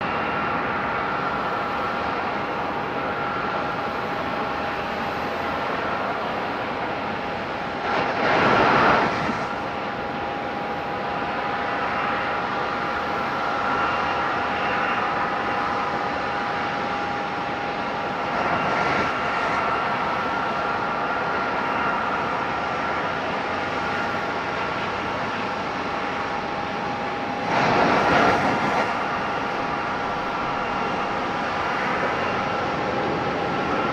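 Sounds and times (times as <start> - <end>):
jet engines whining: 0.0 - 33.9.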